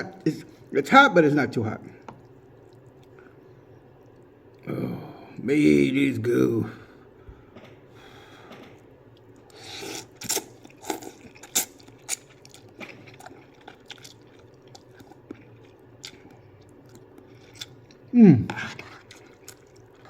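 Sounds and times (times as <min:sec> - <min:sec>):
person chewing noodles: 0:01.9 - 0:05.1, 0:07.3 - 0:20.0.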